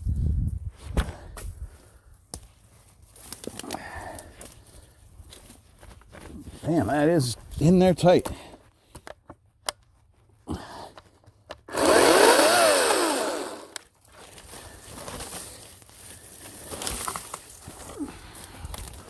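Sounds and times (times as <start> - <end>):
electric chainsaw motor whining: 11.7 - 13.8.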